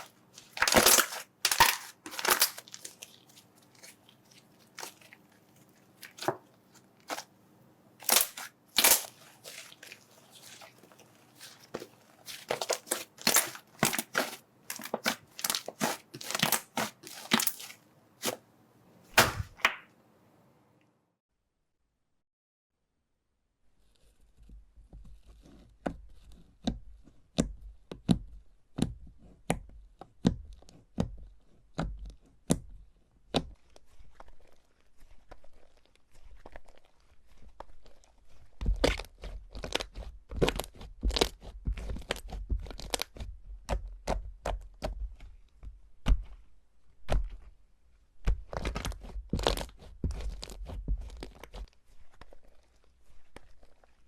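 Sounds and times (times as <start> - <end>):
slime crackling pops: 8.0 - 9.8, 19.2 - 19.8.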